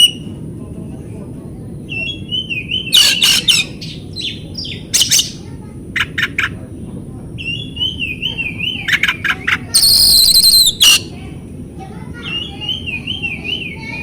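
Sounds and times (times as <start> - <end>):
bird whistled song: 0.0 - 0.3, 1.9 - 5.4, 7.4 - 11.1, 12.2 - 14.0
harsh bird notes: 9.8 - 11.1.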